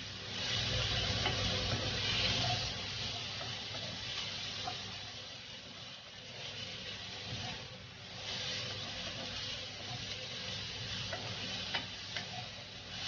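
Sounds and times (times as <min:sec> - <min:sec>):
chilies sizzling in hot oil: 0:00.0 - 0:13.0
spatula clicking against pan: 0:11.0 - 0:12.4.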